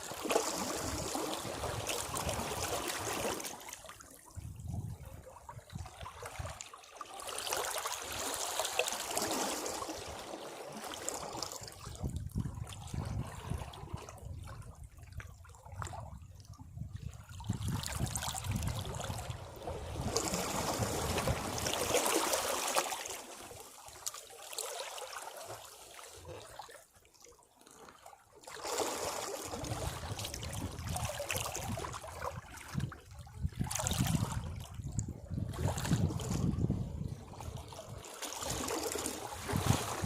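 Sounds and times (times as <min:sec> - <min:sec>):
sea waves surging against rocks: 0:00.0 - 0:03.6, 0:19.3 - 0:23.5.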